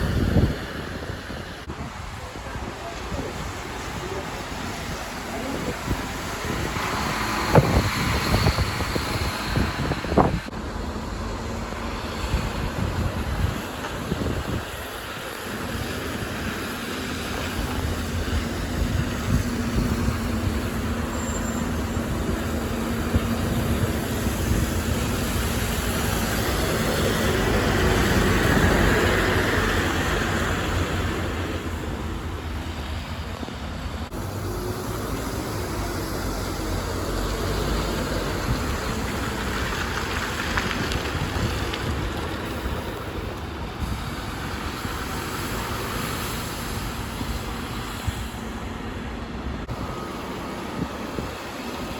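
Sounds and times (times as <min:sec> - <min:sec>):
bus engine running: 0:00.0 - 0:51.9
street traffic: 0:00.0 - 0:51.9.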